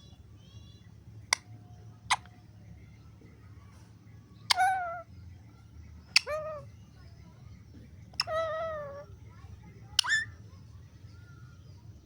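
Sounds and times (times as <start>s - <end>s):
parrot clicks and calls: 1.3s - 2.3s, 4.4s - 5.1s, 6.1s - 6.6s, 8.1s - 9.0s, 10.0s - 10.3s.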